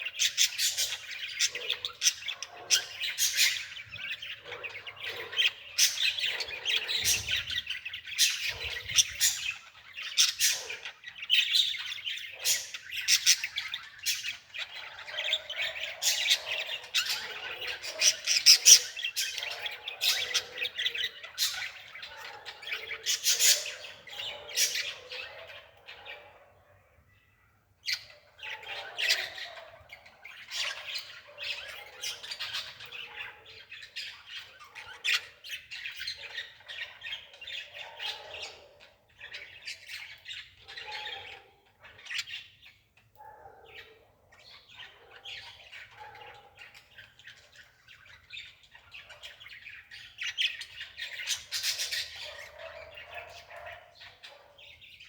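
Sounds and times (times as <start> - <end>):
birds chirping and squawking: 0.0 - 55.0.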